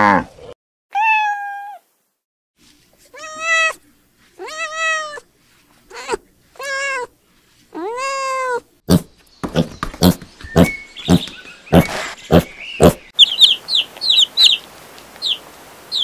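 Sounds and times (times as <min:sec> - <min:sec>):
kittens meowing: 0:03.2 - 0:03.8, 0:04.4 - 0:05.2, 0:05.9 - 0:07.1
piglet grunting: 0:08.9 - 0:13.1.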